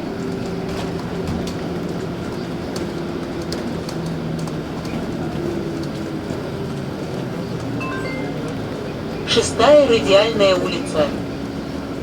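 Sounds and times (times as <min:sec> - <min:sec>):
interior rattles and clicks: 0:00.0 - 0:07.8
bus engine and road drone: 0:00.0 - 0:12.0.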